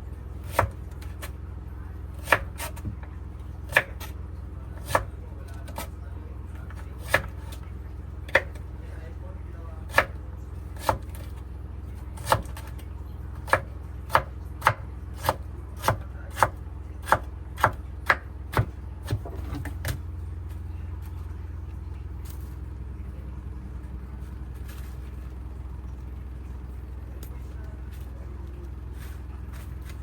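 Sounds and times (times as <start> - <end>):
knife chopping on cutting board: 0.4 - 1.3, 2.2 - 3.1, 3.7 - 4.2, 4.8 - 5.9, 6.7 - 7.6, 9.9 - 10.2, 10.8 - 11.3, 12.2 - 12.8, 13.4 - 20.0
low hum: 16.6 - 30.0.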